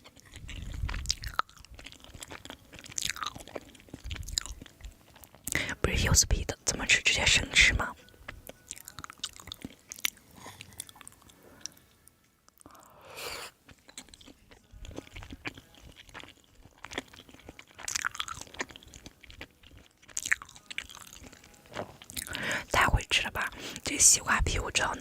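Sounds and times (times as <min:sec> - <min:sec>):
chewing and crunching food: 0:00.0 - 0:25.0.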